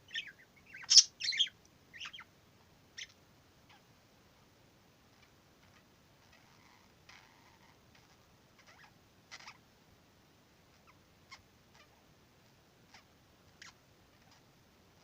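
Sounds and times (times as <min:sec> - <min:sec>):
budgerigar chirping: 0:00.1 - 0:02.3.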